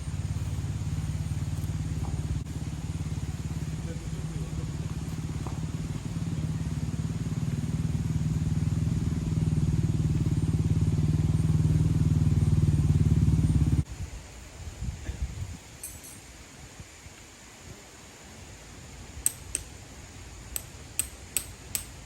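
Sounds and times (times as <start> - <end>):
engine running: 0.0 - 13.9.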